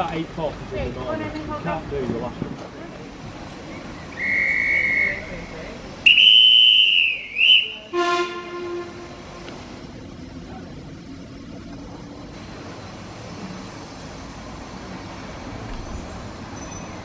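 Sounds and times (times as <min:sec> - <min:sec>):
train rumble: 0:00.0 - 0:17.0
high-pitched guard's whistle: 0:04.1 - 0:05.4, 0:06.1 - 0:07.9
steam locomotive whistle: 0:04.2 - 0:09.5.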